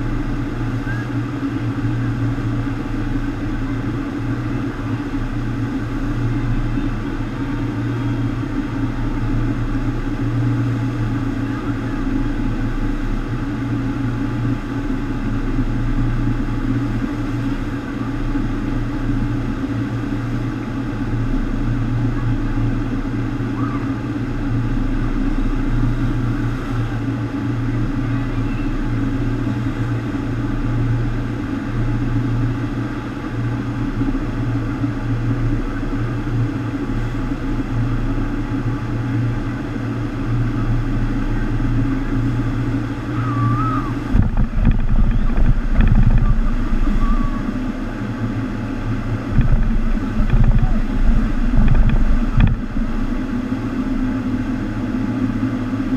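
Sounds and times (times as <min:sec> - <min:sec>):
water rushing: 0:34.4 - 0:55.9
pumps droning: 0:43.1 - 0:54.8.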